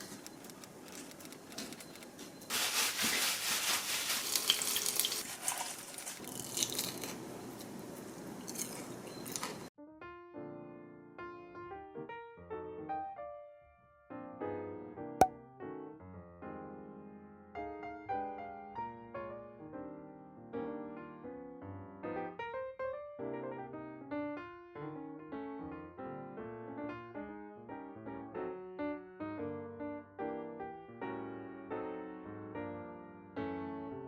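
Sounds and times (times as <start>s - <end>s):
vegetables sizzling in frying oil: 2.5s - 6.0s
soft piano music: 9.8s - 34.0s.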